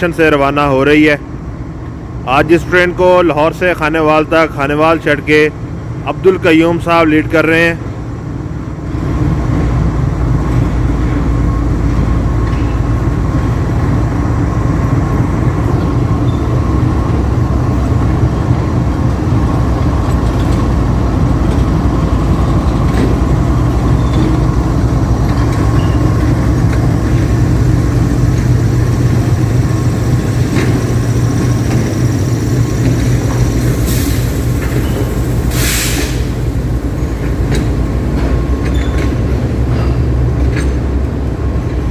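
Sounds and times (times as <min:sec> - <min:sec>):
train rumble: 0:00.0 - 0:41.9
locomotive engine running: 0:07.6 - 0:41.9
short hisses: 0:35.5 - 0:36.4.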